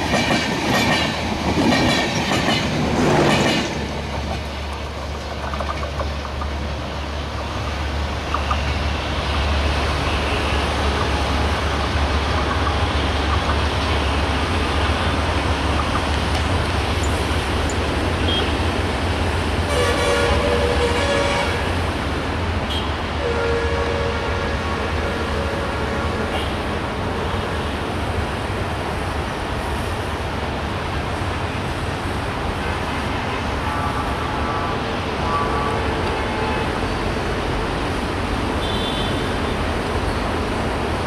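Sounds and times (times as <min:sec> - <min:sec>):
train rumbling: 0:00.0 - 0:41.0
train horn: 0:19.7 - 0:21.7, 0:22.7 - 0:26.6, 0:33.6 - 0:36.9, 0:38.6 - 0:39.4.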